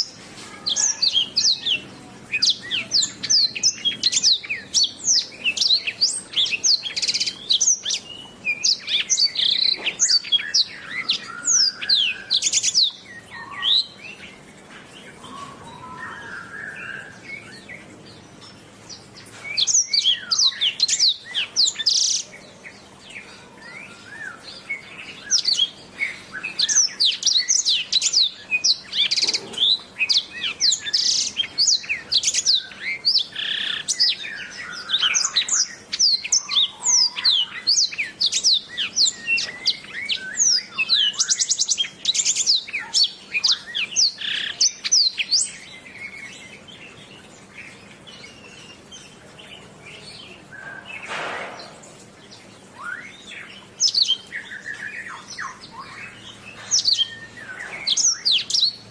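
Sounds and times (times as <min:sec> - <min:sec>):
canary singing chirps and trills: 0:00.0 - 0:58.9.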